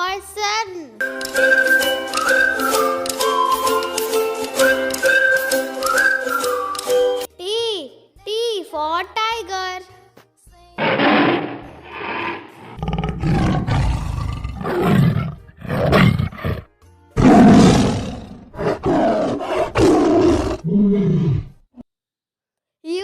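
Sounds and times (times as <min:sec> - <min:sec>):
tiger roaring and growling: 0:10.8 - 0:21.6.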